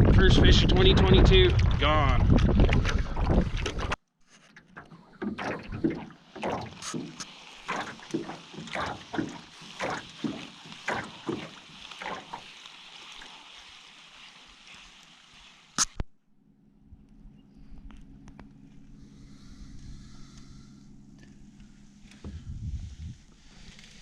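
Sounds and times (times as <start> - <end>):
water splashing against boat: 1.5 - 15.9.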